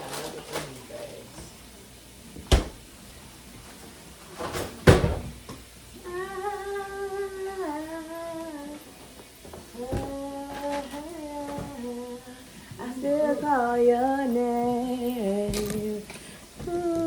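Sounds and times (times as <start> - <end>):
woman humming: 6.0 - 8.9, 9.7 - 17.0.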